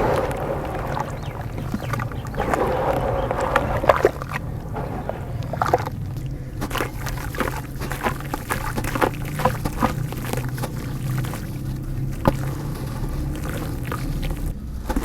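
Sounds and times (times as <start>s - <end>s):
low hum: 0.0s - 9.0s
dirt crumbling in water: 0.0s - 15.0s.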